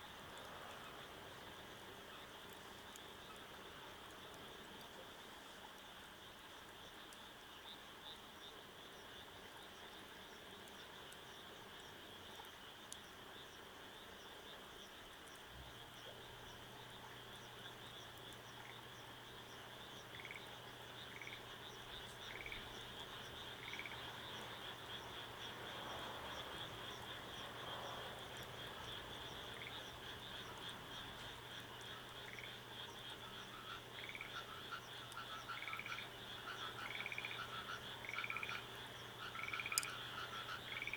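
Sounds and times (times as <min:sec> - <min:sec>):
frogs trilling in chorus: 0:15.7 - 0:40.9
short frog calls: 0:15.7 - 0:40.9.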